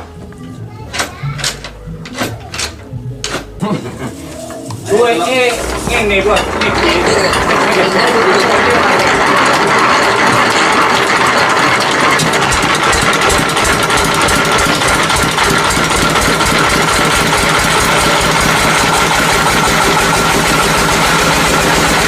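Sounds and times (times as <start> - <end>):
sawmill engine pulsing: 5.2 - 22.0.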